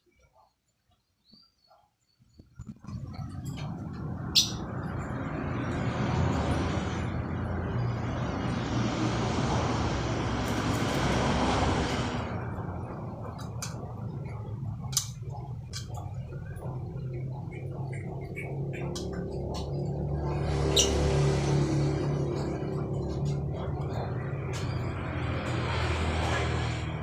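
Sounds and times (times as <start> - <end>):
steady low hum: 2.3 - 27.0
road vehicle passing: 2.8 - 27.0
sparrow chirps: 4.3 - 4.6, 20.7 - 21.0.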